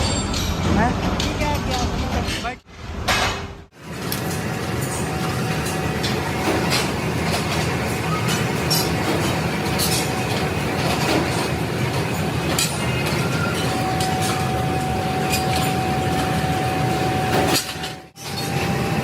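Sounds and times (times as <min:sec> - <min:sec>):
sharp metal clanks: 0:00.0 - 0:02.5
production machinery running: 0:03.7 - 0:19.0
steady machine whine: 0:03.8 - 0:19.0.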